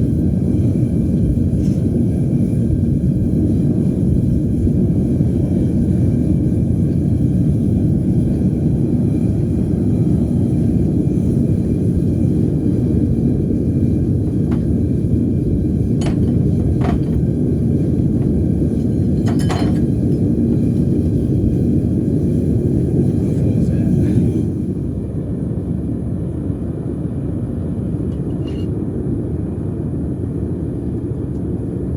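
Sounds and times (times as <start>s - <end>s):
furnace burners roaring: 0.0s - 31.9s
light metallic clinks: 19.2s - 20.2s.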